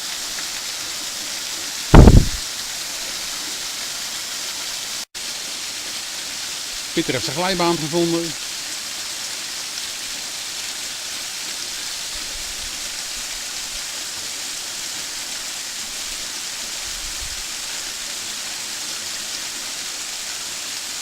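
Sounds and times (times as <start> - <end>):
waterfall rushing hiss: 0.0 - 21.0.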